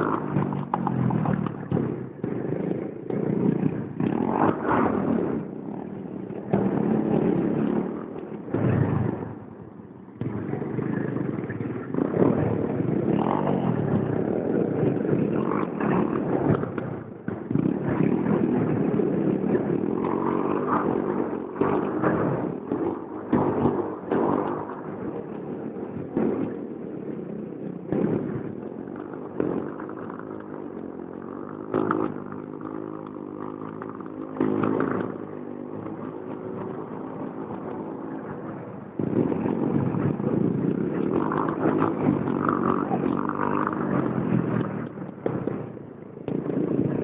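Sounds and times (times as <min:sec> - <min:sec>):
pit bike engine revving: 0:27.9 - 0:45.5.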